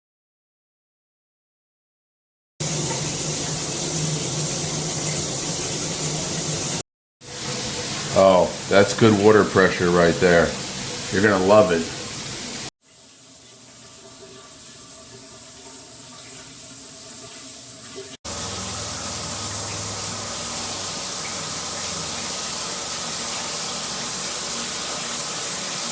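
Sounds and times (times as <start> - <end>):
water spraying from shower head: 2.6 - 12.7, 18.2 - 25.9.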